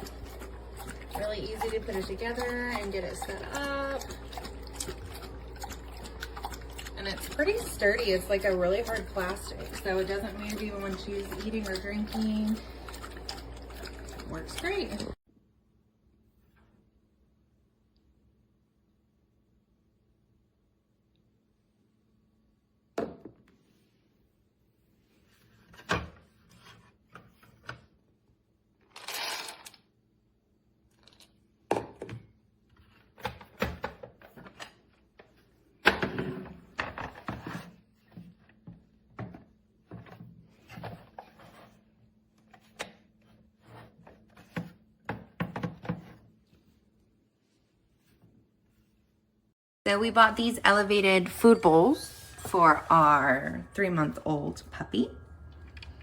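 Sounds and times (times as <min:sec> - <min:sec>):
dog eating from metal bowl: 0:00.0 - 0:15.2.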